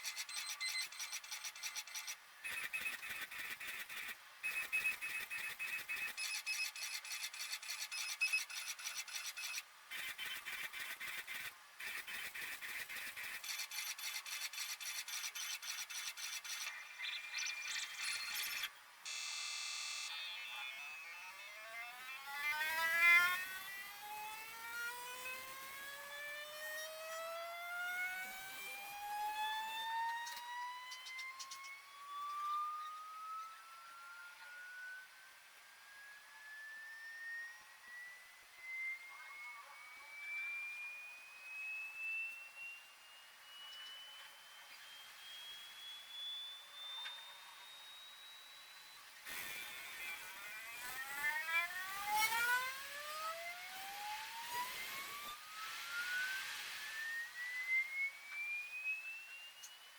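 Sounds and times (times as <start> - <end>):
printer motors ticking buzz: 0.0 - 20.6
stepper motor tone rising in pitch: 0.0 - 59.9.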